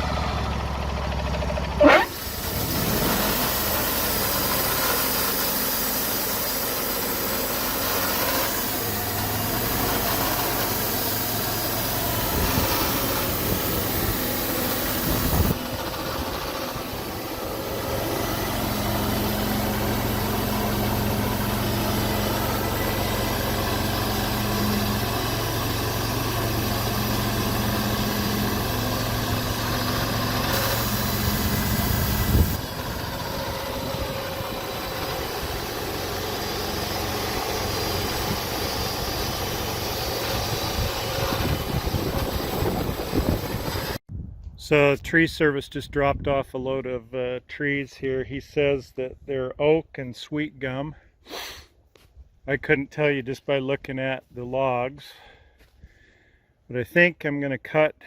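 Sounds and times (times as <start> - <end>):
sawmill engine running: 0.0 - 44.0
loud brief sweep: 1.8 - 3.3.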